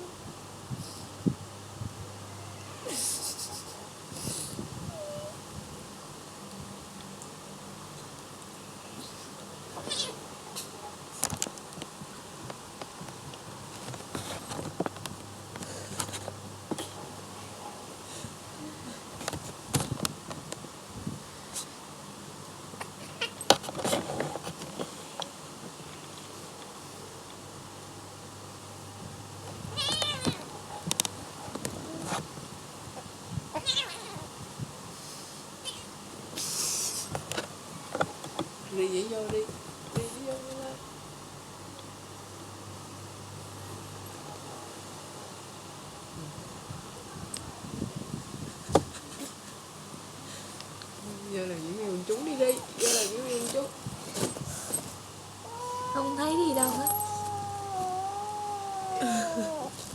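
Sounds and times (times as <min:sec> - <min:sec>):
cat vocalizing: 0:55.4 - 0:59.8.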